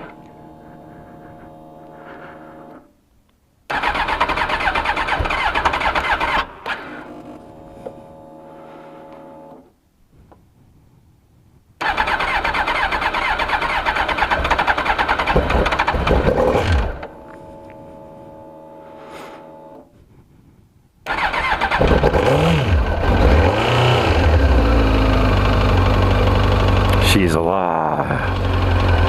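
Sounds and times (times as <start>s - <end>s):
fuel pump whine: 0.0s - 2.9s, 3.7s - 9.7s, 11.8s - 19.9s, 21.1s - 27.1s, 27.9s - 29.0s
motorcycle engine cranking: 3.7s - 7.1s, 11.8s - 17.1s, 21.1s - 24.6s
motorcycle engine revving and idling: 11.8s - 17.1s, 21.1s - 29.0s.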